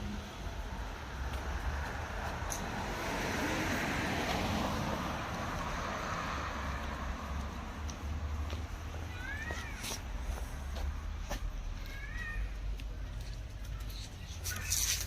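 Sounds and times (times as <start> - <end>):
car passing by: 0.0 - 8.9.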